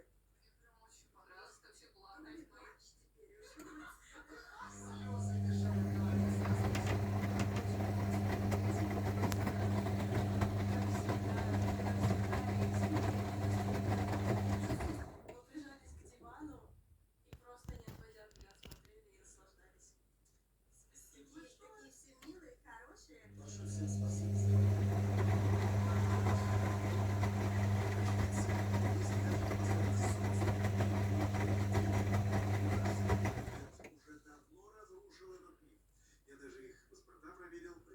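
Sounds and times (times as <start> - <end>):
washing machine running: 4.7 - 15.4, 23.3 - 33.9
patter of clicks: 17.4 - 19.0.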